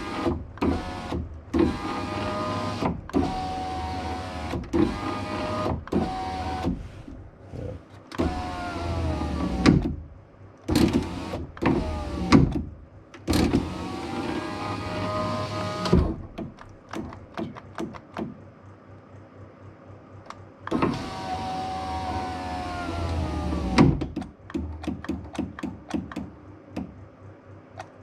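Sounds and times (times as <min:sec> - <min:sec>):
power window motor running: 0:00.0 - 0:07.1, 0:08.2 - 0:10.0, 0:10.7 - 0:12.6, 0:13.3 - 0:16.4, 0:20.7 - 0:24.0.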